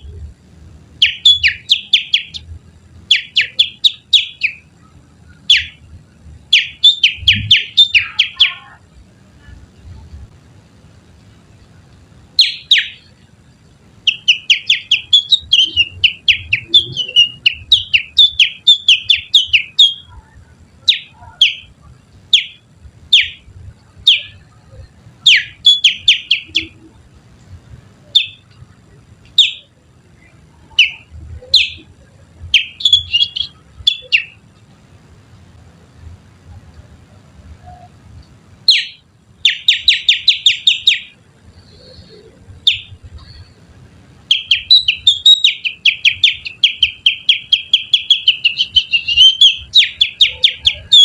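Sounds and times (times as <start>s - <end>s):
finger whistling bird song: 14.1s - 20.1s, 44.3s - 51.0s.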